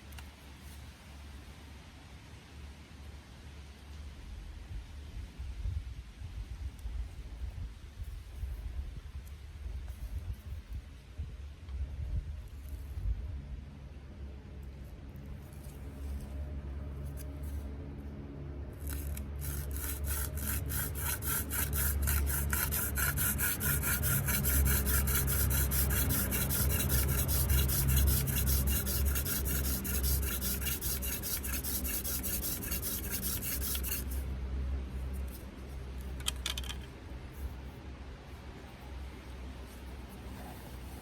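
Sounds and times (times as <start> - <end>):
wooden spindle rubbing in hearth: 18.8 - 34.2.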